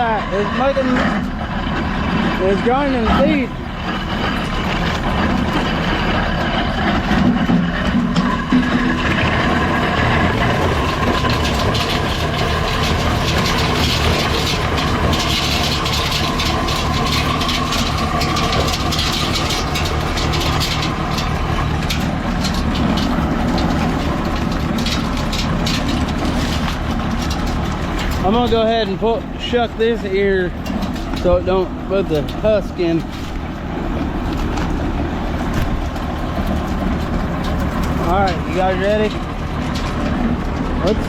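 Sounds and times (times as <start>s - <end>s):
tractor engine running: 0.0s - 41.0s
corn kernels cracking in grinder: 0.6s - 41.0s.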